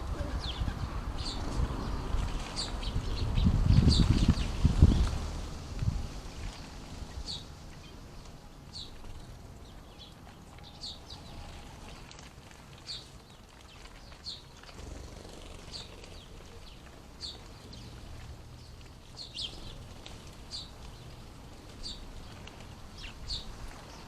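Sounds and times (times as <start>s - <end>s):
bird chirping: 6.4s - 12.2s, 12.8s - 24.0s.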